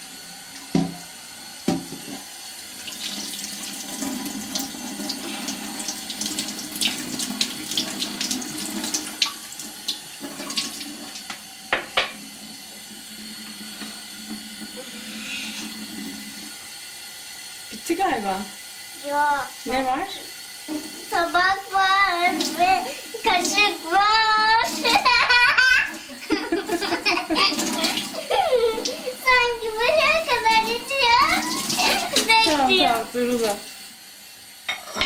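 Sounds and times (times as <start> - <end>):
tap water running into sink: 0.0 - 35.0
dishes and spoons clinking: 34.7 - 35.0.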